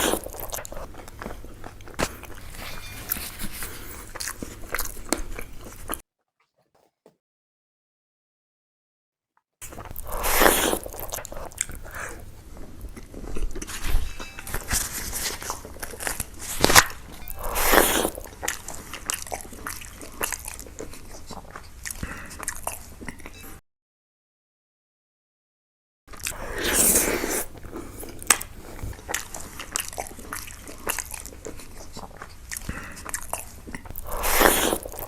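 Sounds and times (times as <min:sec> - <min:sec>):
wet mouth sounds: 0:00.0 - 0:02.5, 0:09.6 - 0:14.0, 0:14.6 - 0:23.2, 0:26.2 - 0:35.0
chewing and crunching food: 0:00.0 - 0:07.1, 0:09.6 - 0:23.4, 0:26.1 - 0:35.0.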